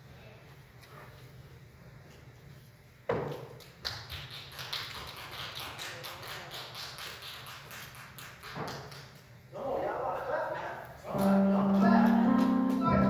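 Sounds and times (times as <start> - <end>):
hands clapping: 3.6 - 9.2, 11.2 - 13.0.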